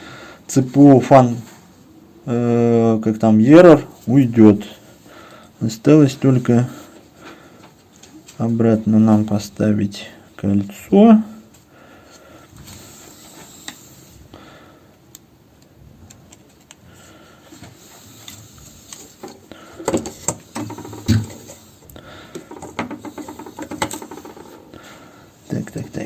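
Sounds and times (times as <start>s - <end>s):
small parts clicking and tapping: 22.3s - 24.6s.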